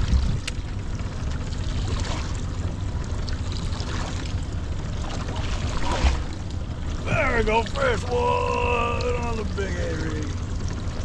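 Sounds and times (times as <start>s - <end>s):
wind rumble on microphone: 0.0s - 7.8s
water sloshing against hull: 0.0s - 11.0s.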